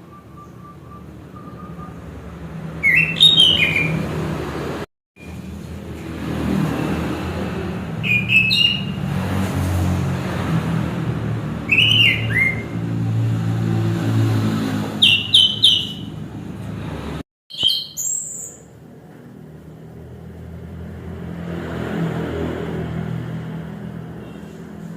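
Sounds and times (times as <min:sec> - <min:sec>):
thrush singing whistled phrases: 0:00.0 - 0:02.2, 0:02.8 - 0:04.0, 0:08.0 - 0:09.0, 0:11.7 - 0:12.8, 0:15.0 - 0:16.1, 0:17.5 - 0:18.7.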